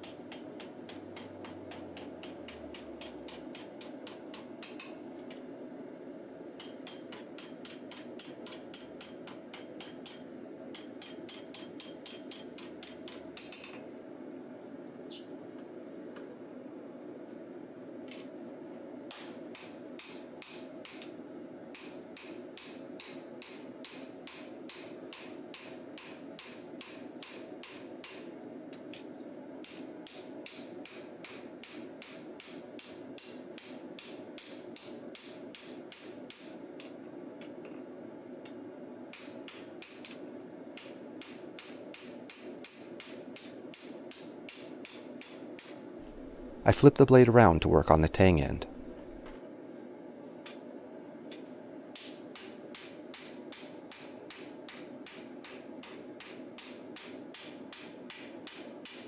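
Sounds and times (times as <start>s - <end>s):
hammer striking blade on anvil: 0.0s - 5.0s, 6.6s - 13.8s, 40.8s - 45.7s.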